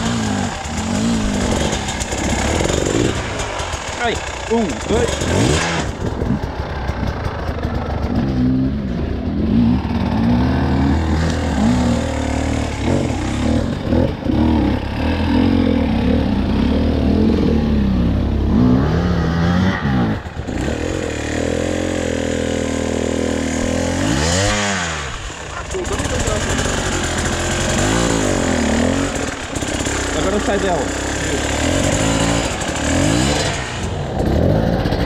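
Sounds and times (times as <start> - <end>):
off-road motorcycle engine revving: 0.0 - 35.0.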